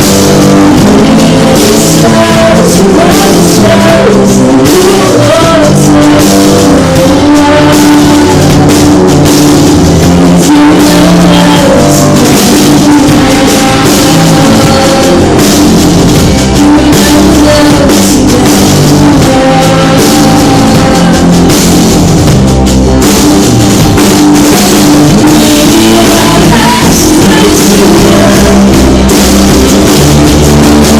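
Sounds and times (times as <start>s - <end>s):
drum kit: 0.0s - 30.9s
guitar: 0.0s - 30.9s
live band playing: 0.0s - 30.9s.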